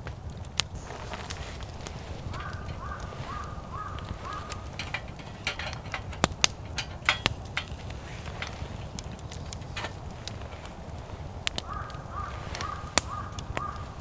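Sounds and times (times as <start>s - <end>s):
wood cracking and snapping: 0.0s - 14.0s
bird calling: 0.8s - 8.6s, 11.5s - 14.0s.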